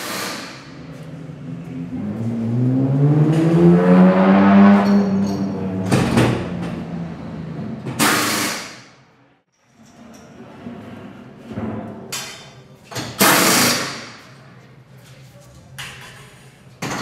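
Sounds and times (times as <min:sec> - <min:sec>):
racing car engine revving: 0:00.0 - 0:08.2.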